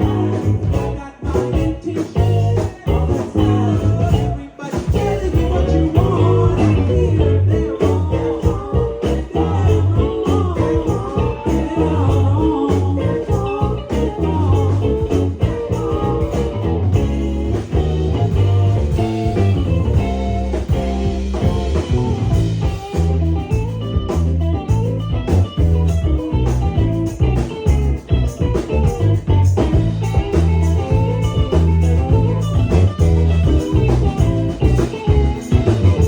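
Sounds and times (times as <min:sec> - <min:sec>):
bass guitar: 0:00.0 - 0:36.0
drum kit: 0:00.0 - 0:36.0
electric guitar: 0:00.0 - 0:36.0.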